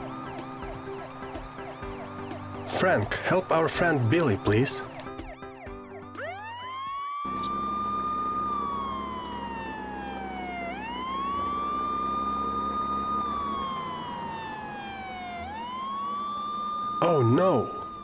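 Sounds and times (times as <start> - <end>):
fire truck siren wailing: 0.0 - 18.0
low engine drone: 7.3 - 18.0.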